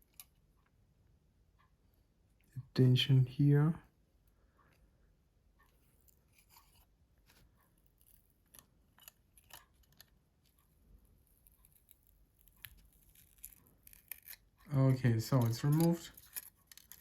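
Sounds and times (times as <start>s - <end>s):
faint small clicks and scrapes: 0.0s - 0.8s, 5.6s - 17.0s.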